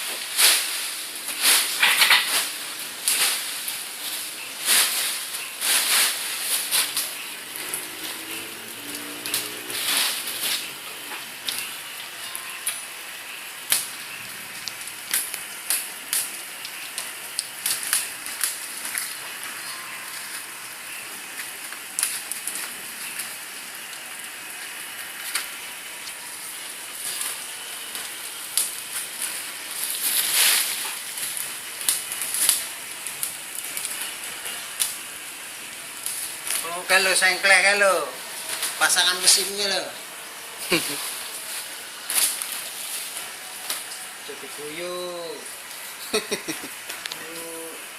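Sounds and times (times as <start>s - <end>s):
plastic and paper crackling: 0.0s - 12.9s, 13.6s - 47.8s
steady high hiss: 0.0s - 47.9s.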